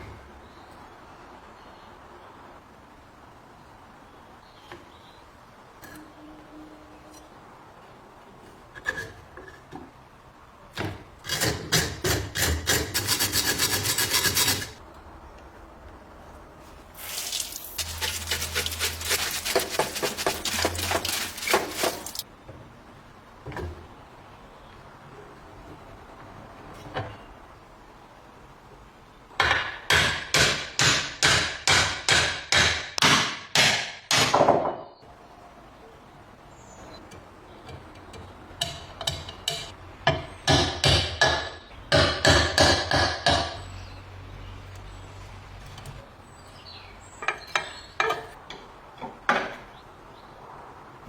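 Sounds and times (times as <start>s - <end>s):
hand scraping strokes on bread cutter: 11.3s - 14.8s, 17.0s - 22.2s.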